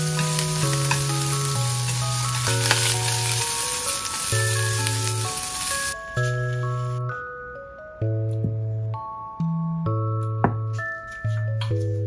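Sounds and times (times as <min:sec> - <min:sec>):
chopsticks stirring in a pan: 0:00.0 - 0:06.0
sausage and onion sizzling: 0:00.0 - 0:07.0
slow background music: 0:00.0 - 0:12.0.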